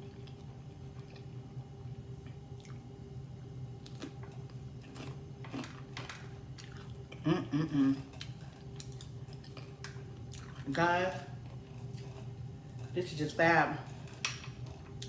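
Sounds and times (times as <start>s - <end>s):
chewing and wet mouth sounds: 0.0s - 15.0s
low background hum: 0.0s - 15.0s
person humming: 7.2s - 8.1s.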